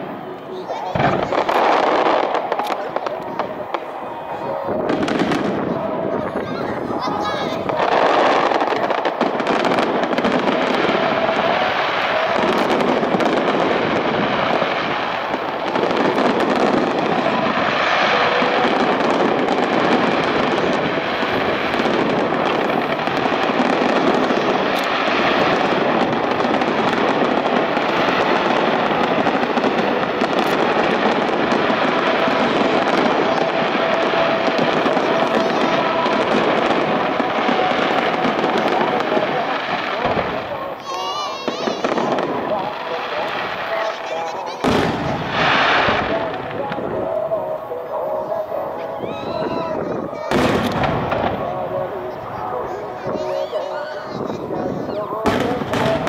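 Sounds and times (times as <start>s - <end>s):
fireworks crackling and popping: 0.0s - 56.0s.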